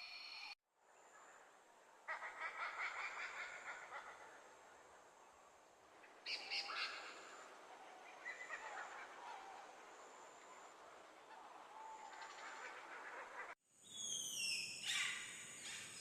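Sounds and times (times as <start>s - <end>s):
bird calls: 6.0s - 16.0s.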